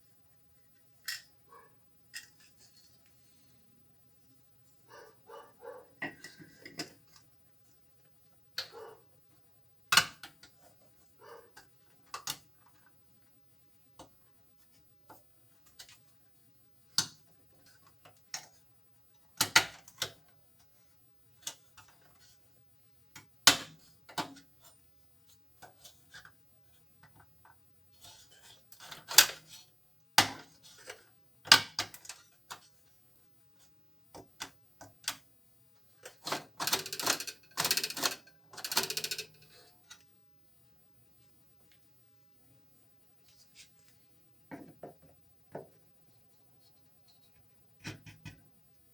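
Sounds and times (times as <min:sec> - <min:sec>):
tools and metal parts clicking: 0:36.2 - 0:40.0.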